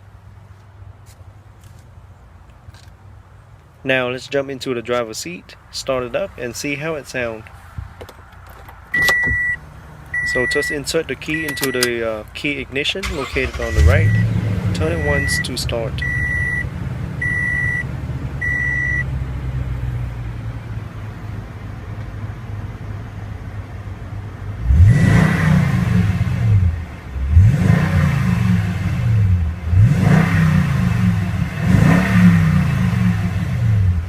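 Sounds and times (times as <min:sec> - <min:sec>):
truck engine idling and revving: 0:07.6 - 0:34.0
warning chime beeping: 0:10.2 - 0:11.9, 0:13.1 - 0:17.8.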